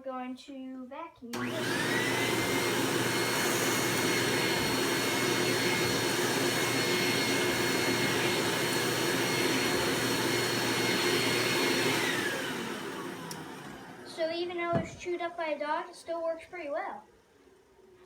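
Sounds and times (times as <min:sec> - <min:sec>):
canister vacuum running: 0:01.3 - 0:15.6.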